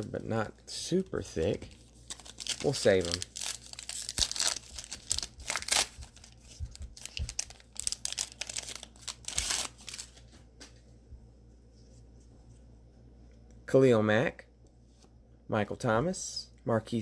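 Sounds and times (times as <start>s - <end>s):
plastic wrapper crinkling and tearing: 1.6s - 10.3s.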